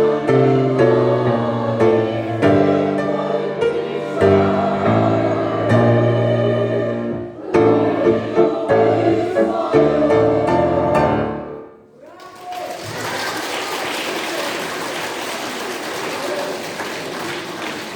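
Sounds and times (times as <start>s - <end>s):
choir singing with instruments: 0.0s - 11.9s
audience applause: 12.1s - 17.9s.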